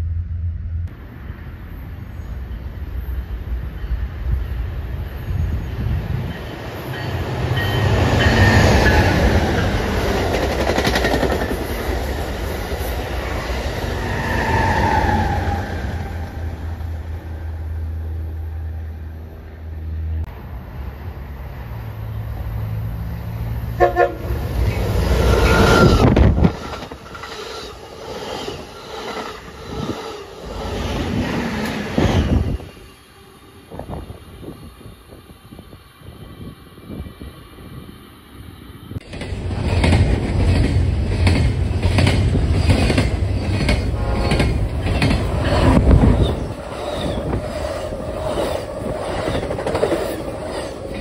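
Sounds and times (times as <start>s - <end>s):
passenger train passing at speed: 0.0s - 51.0s
train horn: 23.7s - 24.4s, 43.9s - 44.6s.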